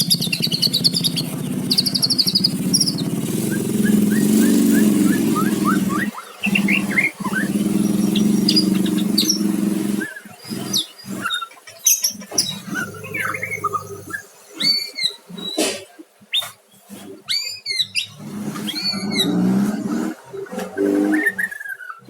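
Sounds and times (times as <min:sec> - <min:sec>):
steady motor hum: 0:00.0 - 0:11.4
bird singing whistled notes: 0:00.0 - 0:15.6, 0:17.3 - 0:19.7.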